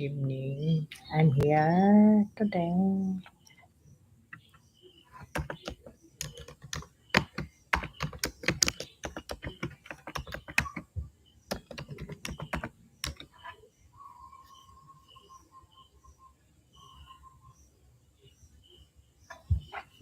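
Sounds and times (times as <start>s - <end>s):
rapid sharp clicks and taps: 5.2s - 13.3s.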